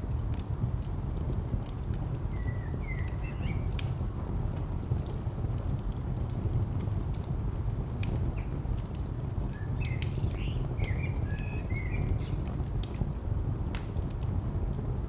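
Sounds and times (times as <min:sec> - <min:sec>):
distant traffic rumble: 0:00.0 - 0:15.0
wood fire crackling: 0:00.0 - 0:15.0
bird chirps: 0:02.4 - 0:04.2, 0:09.5 - 0:12.5.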